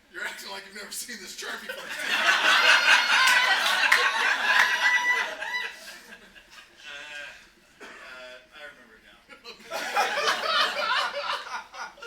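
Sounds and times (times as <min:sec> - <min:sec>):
audience laughing: 0:01.8 - 0:07.2, 0:09.4 - 0:12.0.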